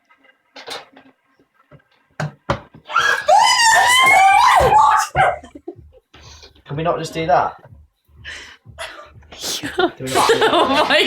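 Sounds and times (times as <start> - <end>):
person screaming: 2.9 - 5.4.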